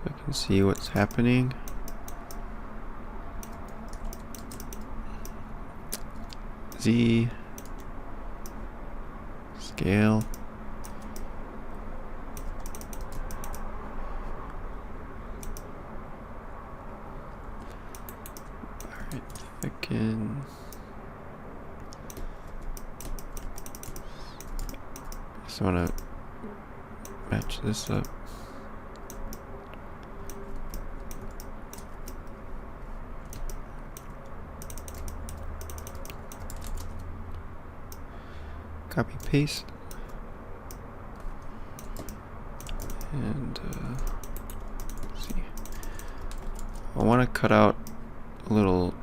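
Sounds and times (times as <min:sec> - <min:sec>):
low background hum: 0:00.0 - 0:49.0
keyboard keys clicking: 0:03.4 - 0:05.4, 0:12.4 - 0:13.6, 0:21.8 - 0:25.2, 0:33.3 - 0:37.0, 0:40.7 - 0:43.1, 0:43.7 - 0:46.8.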